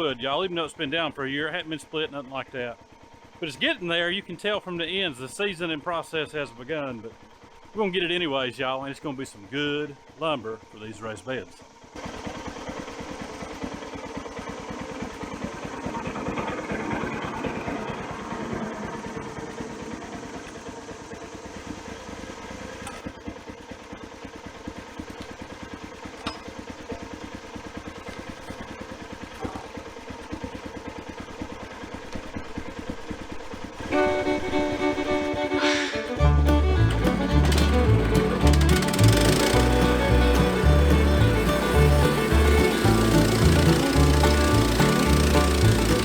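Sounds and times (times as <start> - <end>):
sawmill engine pulsing: 0.0 - 46.0
band blade cutting log: 35.4 - 46.0.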